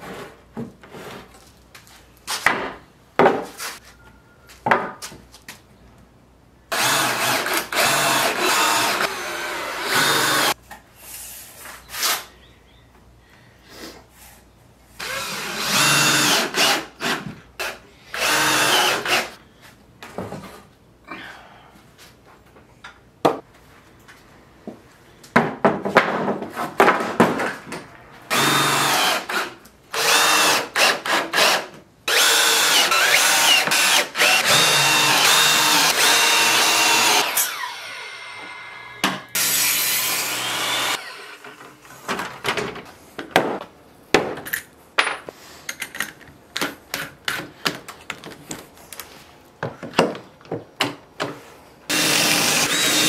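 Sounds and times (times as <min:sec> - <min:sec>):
knocks and clatter of wood and tools: 0:00.0 - 0:03.6, 0:04.6 - 0:05.6, 0:20.0 - 0:20.7, 0:24.6 - 0:28.0, 0:41.4 - 0:51.5
electric power tool cutting wood: 0:06.7 - 0:10.6, 0:28.3 - 0:29.4, 0:30.0 - 0:41.4, 0:51.9 - 0:53.0.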